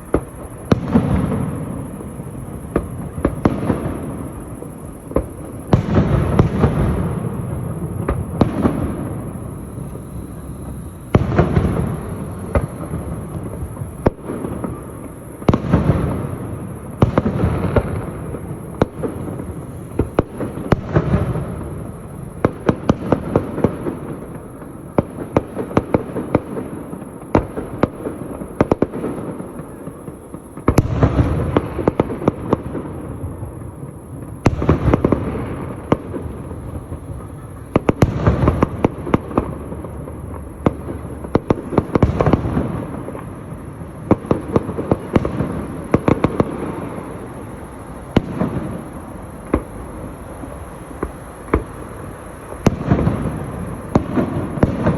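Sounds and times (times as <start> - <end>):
fireworks cracking and crackling: 0.0 - 54.9
fireworks shells booming: 0.0 - 54.9.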